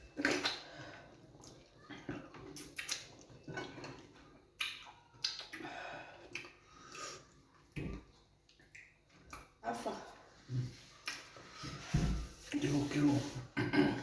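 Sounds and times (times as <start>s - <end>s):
lip-smacking: 0.1s - 0.8s, 1.4s - 4.0s, 4.6s - 7.0s
chewing: 0.1s - 5.6s.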